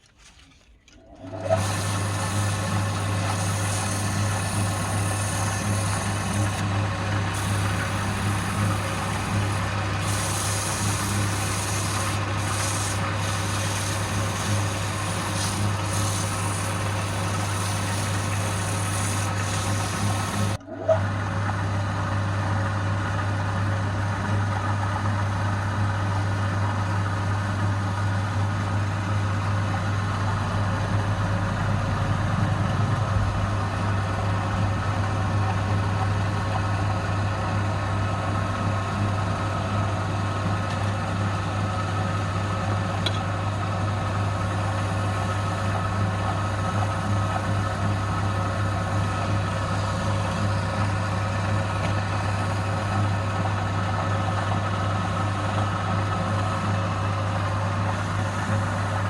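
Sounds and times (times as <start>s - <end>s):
turning tool scraping wood: 0.0s - 20.6s
wood lathe motor humming: 1.0s - 21.6s, 32.6s - 59.0s.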